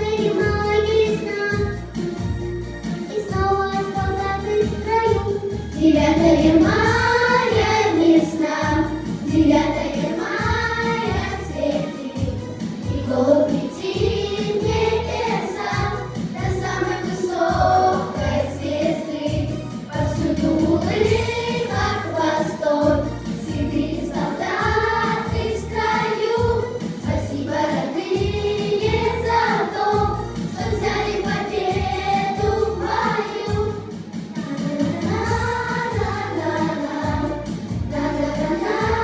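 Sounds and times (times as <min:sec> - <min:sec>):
children singing together: 0:00.0 - 0:01.8, 0:03.0 - 0:39.0
backing track with steady beat: 0:00.0 - 0:39.0.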